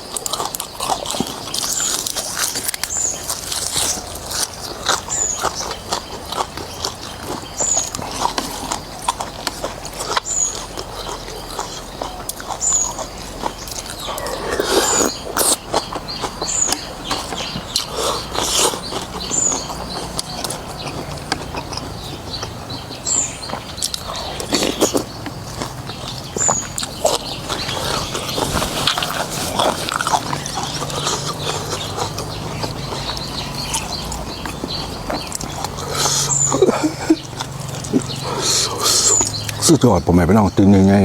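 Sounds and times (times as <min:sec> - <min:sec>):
wet chewing: 0:00.0 - 0:39.8
lip smacks: 0:00.1 - 0:39.7
noodle slurping: 0:13.7 - 0:22.3, 0:23.8 - 0:39.6.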